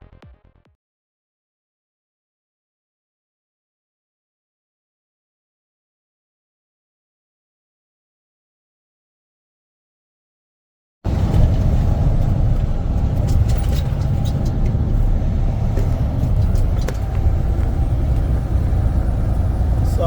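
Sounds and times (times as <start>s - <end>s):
truck engine and road rumble: 11.1s - 20.0s
light clicks and rattles: 11.3s - 18.4s.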